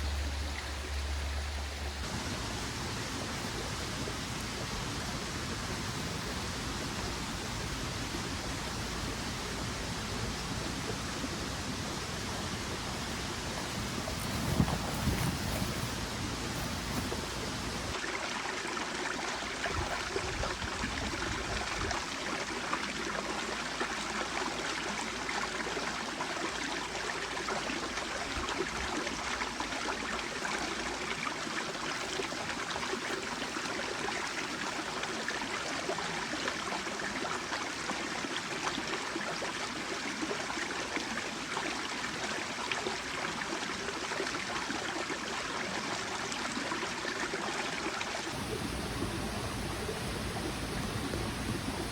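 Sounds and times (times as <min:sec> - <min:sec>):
stream babbling over rocks: 0:00.0 - 0:21.6, 0:47.2 - 0:51.9.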